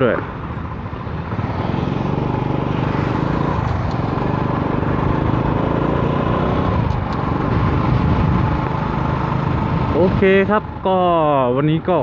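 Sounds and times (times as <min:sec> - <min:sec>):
road and traffic noise: 0:00.0 - 0:12.0
vehicle engine running: 0:00.4 - 0:11.1.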